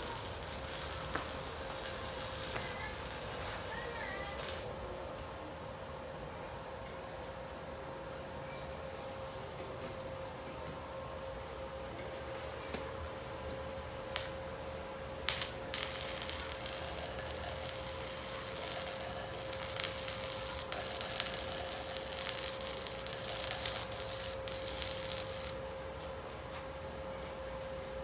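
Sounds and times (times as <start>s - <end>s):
arc welding crackle: 0.0s - 4.8s, 14.1s - 14.4s, 15.2s - 26.4s
steady hum: 14.7s - 26.5s.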